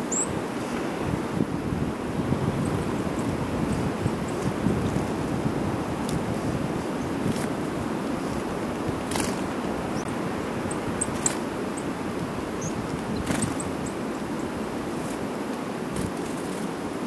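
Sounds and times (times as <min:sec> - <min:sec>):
songbirds calling: 0:00.0 - 0:00.9, 0:09.0 - 0:14.9
wind blowing over microphone: 0:00.0 - 0:17.0.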